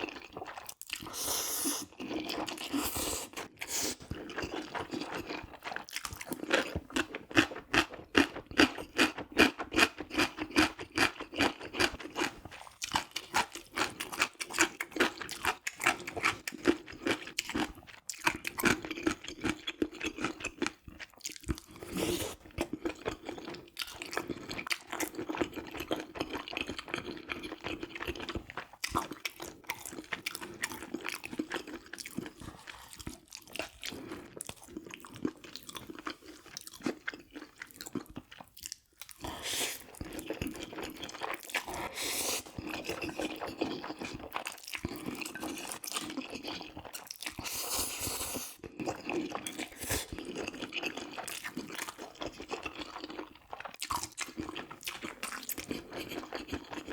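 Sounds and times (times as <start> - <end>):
chewing food crunches: 1.8 - 47.7, 48.6 - 56.9.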